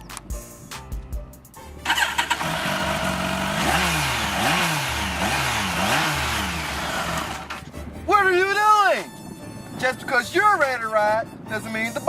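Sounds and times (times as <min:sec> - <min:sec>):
motorcycle engine revving: 0:01.8 - 0:07.7.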